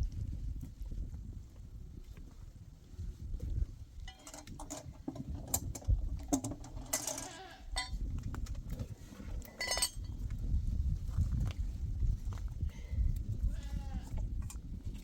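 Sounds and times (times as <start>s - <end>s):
clinks and knocks: 4.1s - 8.6s, 9.5s - 10.1s.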